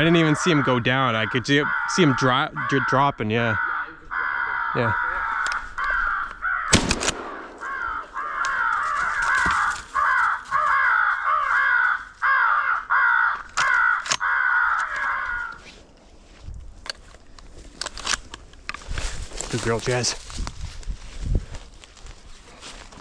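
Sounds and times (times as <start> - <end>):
crows cawing: 0.0 - 15.9.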